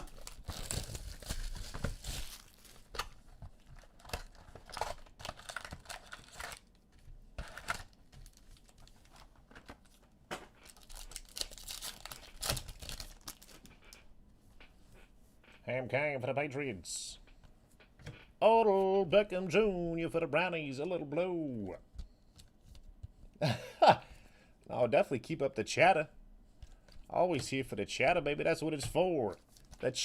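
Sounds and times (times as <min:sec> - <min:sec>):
plastic wrap tearing and crinkling: 0:00.0 - 0:06.8, 0:09.9 - 0:14.0.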